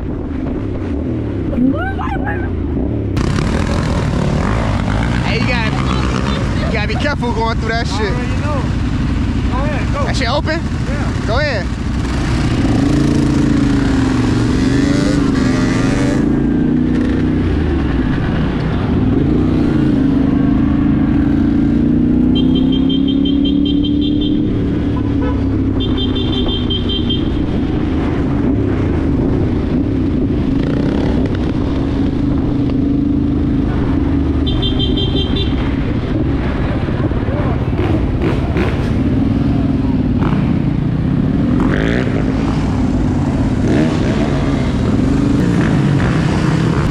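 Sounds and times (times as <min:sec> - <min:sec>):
dirt bike engine revving: 0:03.1 - 0:26.8, 0:37.7 - 0:46.9.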